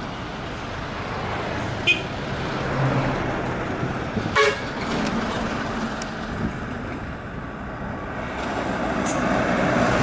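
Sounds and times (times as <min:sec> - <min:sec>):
truck horn toot: 0:01.8 - 0:02.1, 0:04.3 - 0:04.7.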